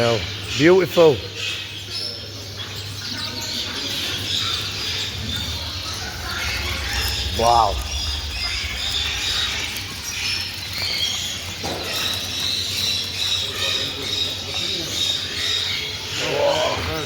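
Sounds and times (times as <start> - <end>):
songbirds chirping: 0.0 - 17.0
steady low hum: 4.4 - 11.4.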